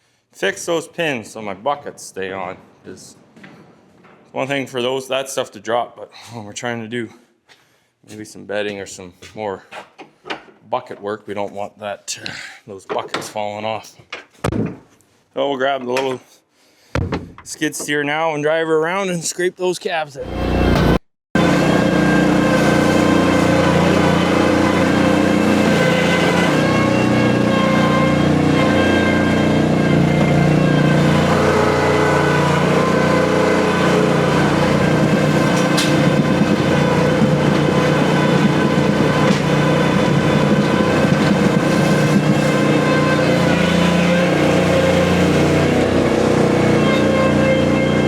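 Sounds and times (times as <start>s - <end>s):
skid steer engine running: 20.3s - 48.0s.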